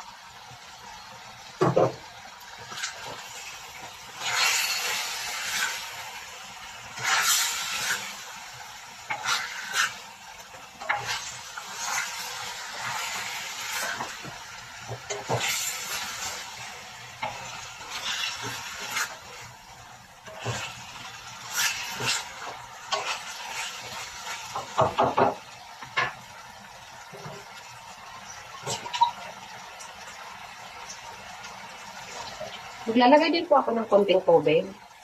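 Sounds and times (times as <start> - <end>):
meat sizzling in a pan: 0.0 - 35.0
spoon scraping a pan: 4.1 - 6.0, 6.9 - 8.3, 9.0 - 10.1, 10.8 - 16.6, 17.2 - 19.5, 20.2 - 26.2, 28.6 - 29.2
spoon knocking against a pan: 24.8 - 25.4.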